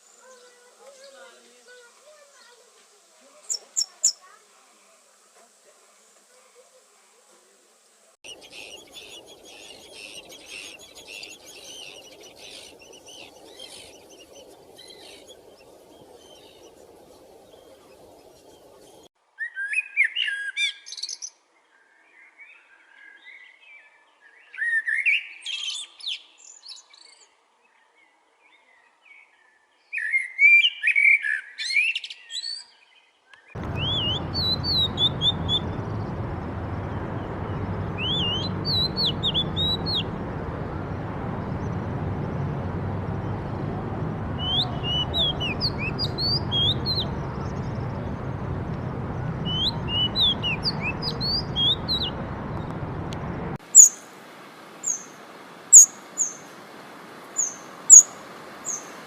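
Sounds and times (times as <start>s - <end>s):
songbirds singing warbled phrases: 3.4s - 4.4s, 8.3s - 21.3s, 33.3s - 54.0s, 57.4s - 59.0s
steady background noise: 33.6s - 59.0s.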